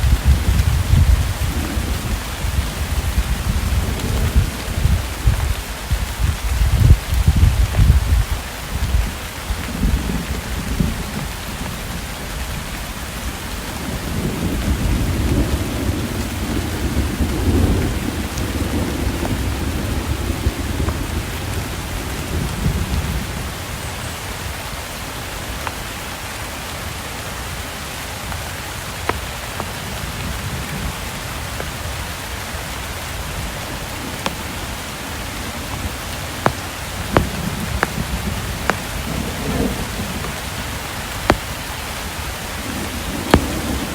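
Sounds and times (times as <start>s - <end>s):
rolling thunder: 0.0s - 12.6s, 13.6s - 23.5s, 33.3s - 43.9s
steady rain: 0.0s - 43.9s.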